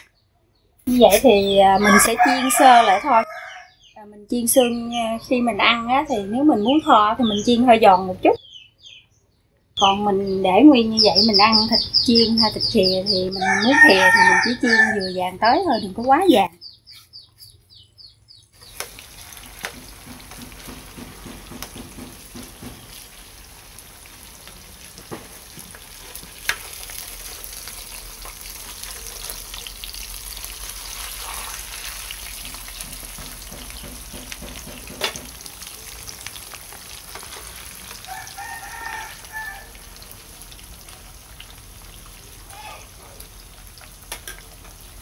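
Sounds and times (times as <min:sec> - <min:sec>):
patty sizzling in oil: 0:18.6 - 0:45.0.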